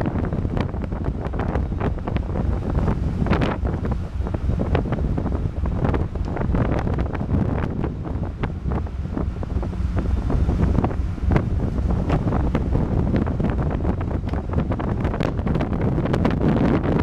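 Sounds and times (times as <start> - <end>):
ship low rumble: 0.0 - 17.0
wind buffeting microphone: 0.0 - 17.0.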